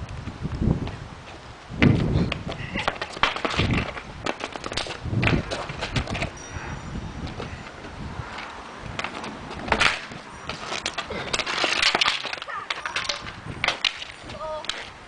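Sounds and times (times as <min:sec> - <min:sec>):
stick scraping: 0:07.6 - 0:15.0
hockey sticks clacking on ball: 0:09.0 - 0:14.9.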